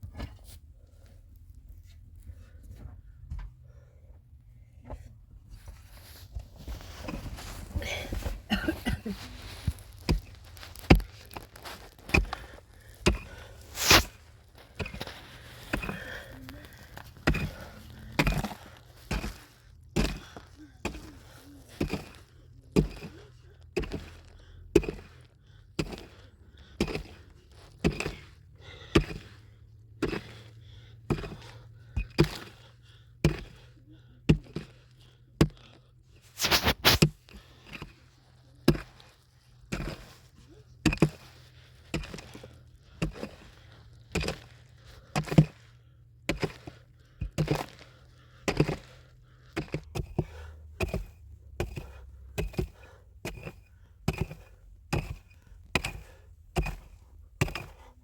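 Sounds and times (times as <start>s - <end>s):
hand tool chopping strikes: 13.0s - 14.2s, 24.8s - 25.1s, 25.8s - 26.2s, 26.8s - 27.2s, 27.8s - 28.2s, 29.0s - 29.3s, 40.8s - 41.2s, 41.9s - 42.4s, 45.2s - 45.6s, 46.3s - 47.8s, 48.5s - 48.9s, 49.5s - 57.9s.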